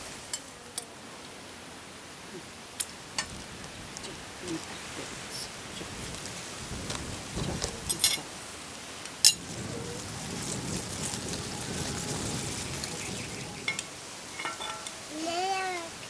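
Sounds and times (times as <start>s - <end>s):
steady background hiss: 0.0s - 16.0s
cutlery and dishes clinking: 7.8s - 8.3s, 9.2s - 9.4s, 13.7s - 15.1s.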